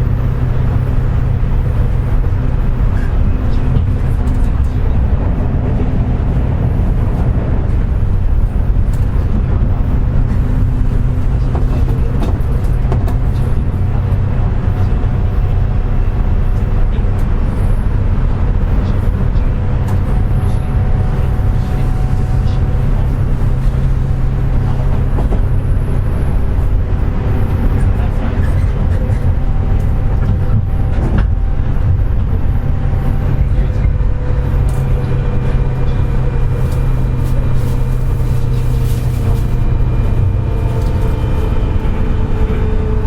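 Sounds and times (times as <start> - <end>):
train running low rumble: 0.0 - 43.0.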